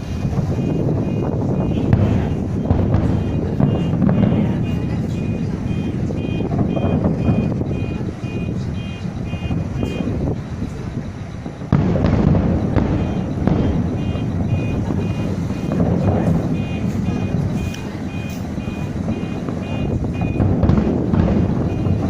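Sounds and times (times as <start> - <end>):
fireworks exploding: 0.0 - 22.0
high electronic beep: 3.2 - 10.1, 13.0 - 15.8, 16.4 - 20.5.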